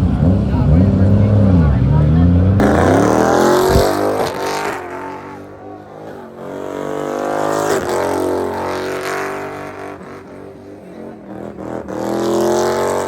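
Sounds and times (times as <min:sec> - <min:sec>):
car engine running: 0:00.0 - 0:06.6.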